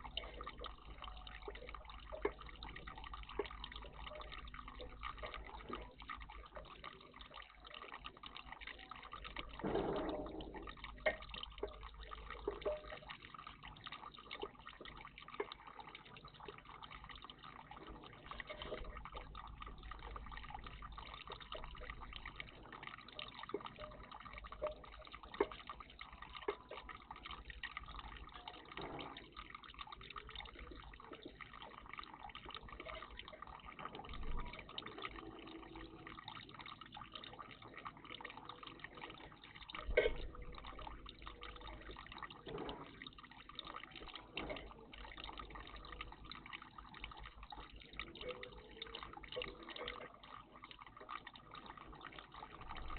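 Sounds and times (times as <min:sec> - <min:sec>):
water trickling and dripping: 0:00.0 - 0:52.9
water splash: 0:09.4 - 0:13.0.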